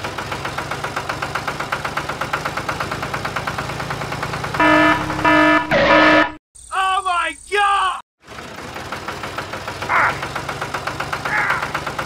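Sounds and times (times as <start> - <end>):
tractor engine chugging: 0.0 - 6.2, 8.2 - 12.0
horn warning beeps: 4.6 - 6.4.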